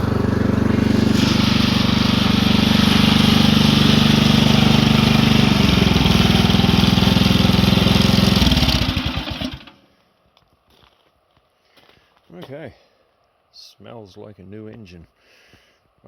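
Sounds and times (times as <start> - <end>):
snowblower engine running: 0.0 - 9.9.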